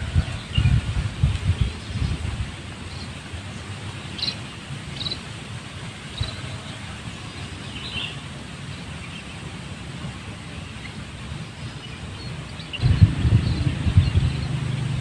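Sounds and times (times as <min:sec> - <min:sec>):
wind rumble: 0:00.0 - 0:03.5, 0:12.7 - 0:15.0
high bird chirps: 0:12.6 - 0:15.0.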